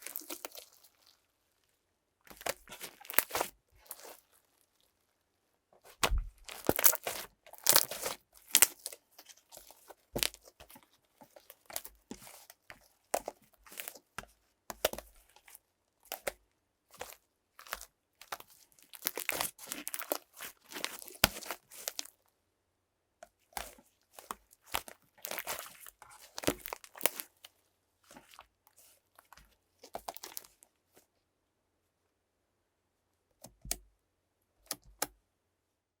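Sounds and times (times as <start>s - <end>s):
slime crackling and popping: 0.0s - 0.8s, 2.3s - 4.2s, 5.9s - 9.3s, 10.2s - 10.5s, 17.0s - 22.1s, 23.6s - 27.3s.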